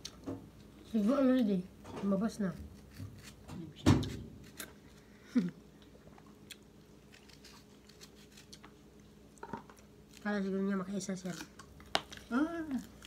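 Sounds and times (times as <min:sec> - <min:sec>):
person chewing food: 0:04.4 - 0:10.2.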